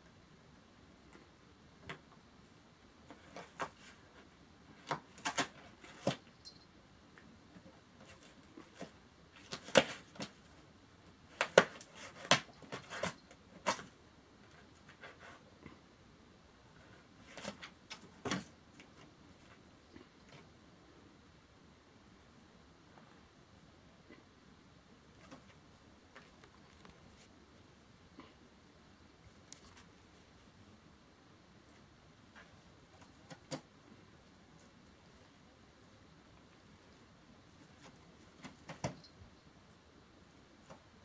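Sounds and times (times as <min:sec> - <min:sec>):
cat scratching cardboard box: 0:03.0 - 0:06.2, 0:07.6 - 0:10.4, 0:11.3 - 0:14.0.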